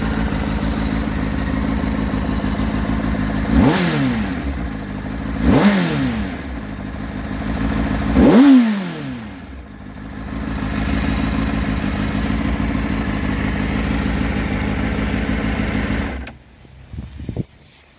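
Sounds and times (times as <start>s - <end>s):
motorcycle engine revving and idling: 0.0s - 17.9s.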